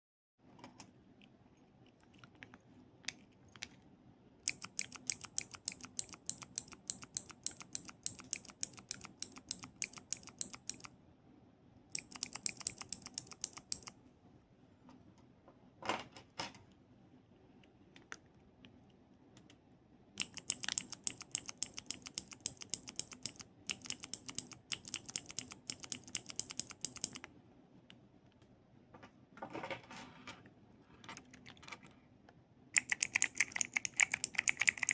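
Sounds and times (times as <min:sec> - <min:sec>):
keyboard typing clicks: 0:04.5 - 0:11.0, 0:11.9 - 0:14.0, 0:20.2 - 0:27.3, 0:32.8 - 0:34.9.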